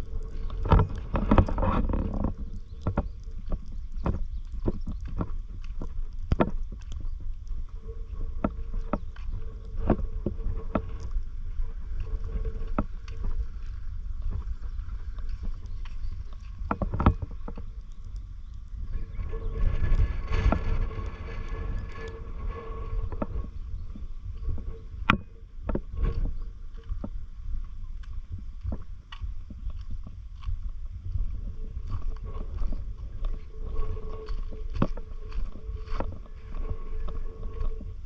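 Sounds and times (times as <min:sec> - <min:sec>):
water lapping at shore: 0:00.0 - 0:18.5
low rumble: 0:00.0 - 0:38.0.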